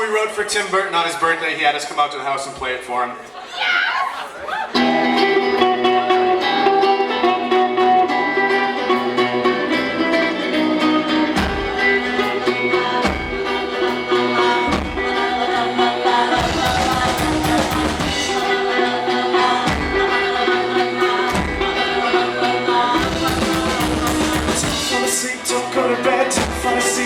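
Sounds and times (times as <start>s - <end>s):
rock band playing: 4.7s - 27.0s
deep drum beat: 16.4s - 18.4s, 23.0s - 25.1s.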